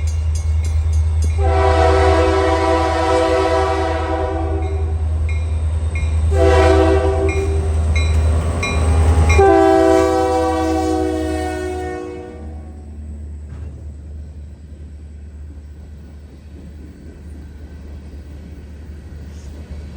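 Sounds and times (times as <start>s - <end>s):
train rumble: 0.0s - 19.9s
locomotive air horn: 1.4s - 5.0s, 6.3s - 7.8s, 9.3s - 13.0s.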